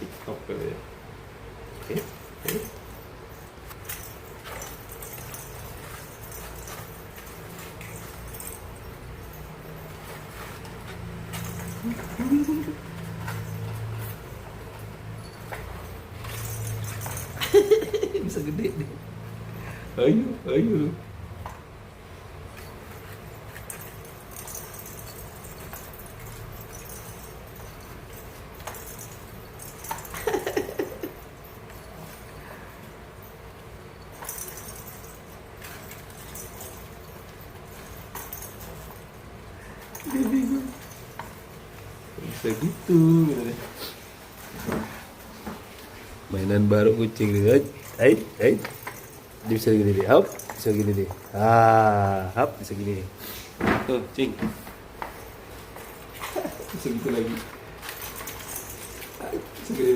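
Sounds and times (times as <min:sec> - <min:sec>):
cat playing with toy: 0:22.5 - 0:45.8, 0:46.7 - 0:51.6, 0:55.1 - 0:59.9.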